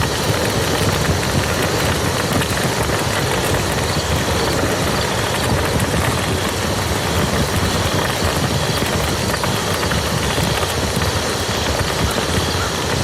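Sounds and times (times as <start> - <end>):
low dense rumble: 0.0 - 13.0
rain pattering on a field: 0.0 - 13.0.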